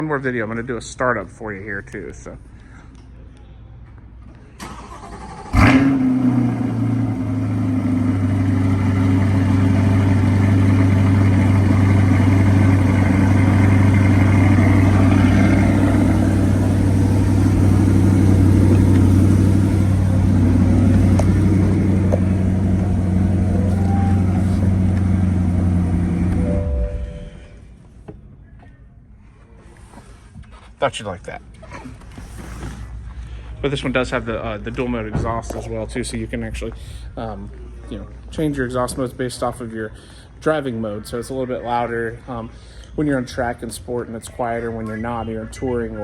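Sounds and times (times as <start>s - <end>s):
car engine revving then idling: 4.8s - 27.5s.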